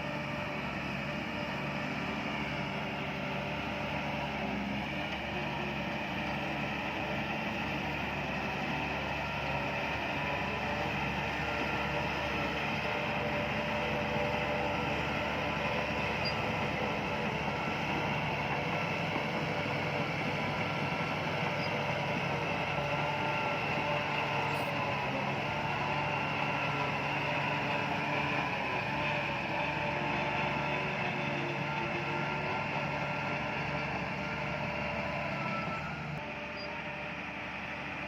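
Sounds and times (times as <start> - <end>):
bulldozer diesel engine running: 0.0 - 38.0.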